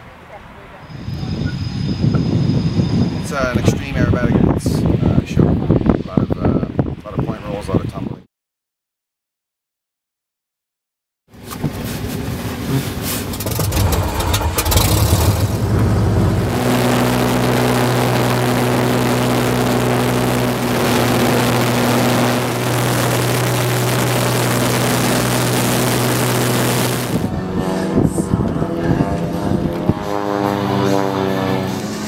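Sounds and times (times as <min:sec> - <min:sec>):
light aircraft piston engine: 0:11.5 - 0:32.0.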